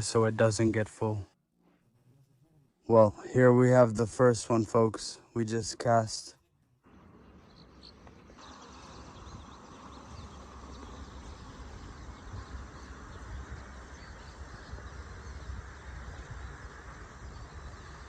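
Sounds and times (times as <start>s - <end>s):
faint bird chirps: 6.9s - 18.0s
wind buffeting microphone: 7.0s - 18.0s.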